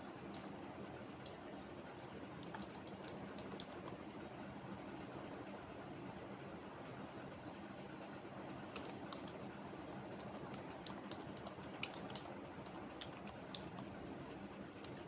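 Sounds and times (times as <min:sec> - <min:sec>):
keyboard typing: 0:01.2 - 0:04.0, 0:08.7 - 0:09.4, 0:10.0 - 0:14.0, 0:14.8 - 0:15.0.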